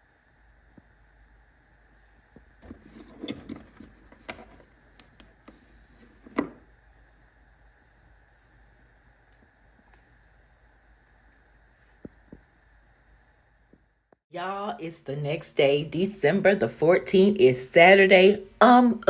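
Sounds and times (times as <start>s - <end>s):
faint room hum: 0.0s - 19.0s.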